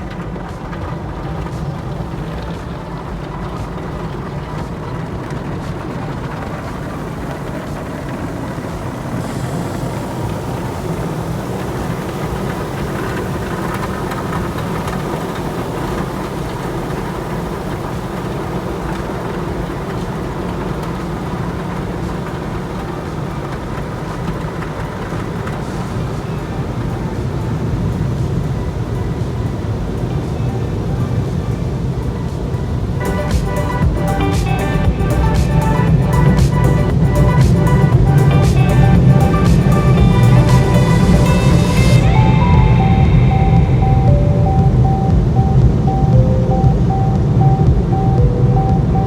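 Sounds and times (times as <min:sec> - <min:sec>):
car wash rushing noise: 0:00.0 - 0:49.0
low hum: 0:32.8 - 0:49.0.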